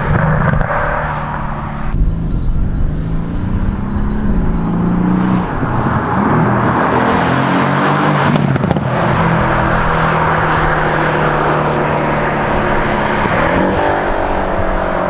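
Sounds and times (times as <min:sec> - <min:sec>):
sharp exhaust pops: 0:00.0 - 0:06.7, 0:08.1 - 0:11.7
car engine pulling under load: 0:00.0 - 0:15.0.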